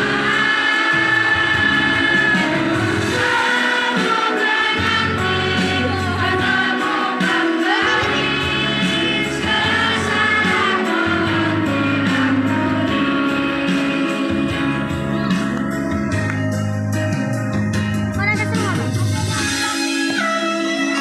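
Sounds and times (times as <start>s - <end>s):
children's choir singing: 0.0s - 14.7s
instrumental accompaniment: 0.0s - 21.0s.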